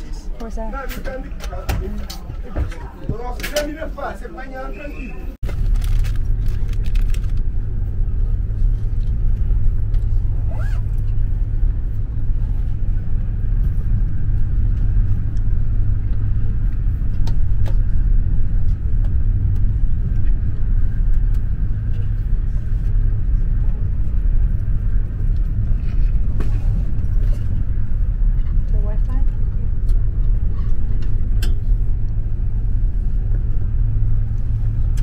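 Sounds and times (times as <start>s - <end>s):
train carriage rumble: 0.0s - 35.0s.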